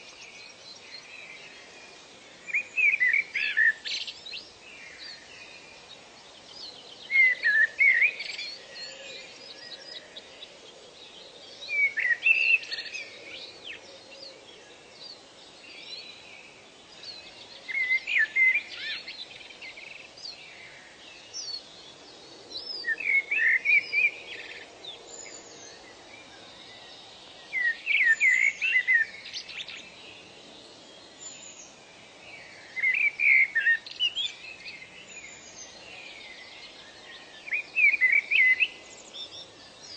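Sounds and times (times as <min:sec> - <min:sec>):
soft background hiss: 0:00.0 - 0:39.9
other birds chirping: 0:31.1 - 0:39.9.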